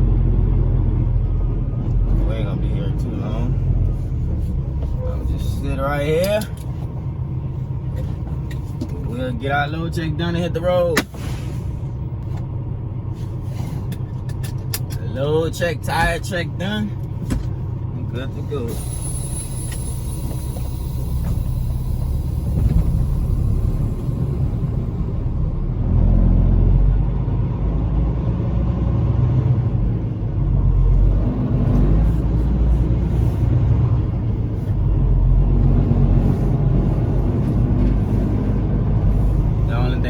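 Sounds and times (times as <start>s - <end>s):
diesel truck engine rumbling: 0.0s - 40.0s.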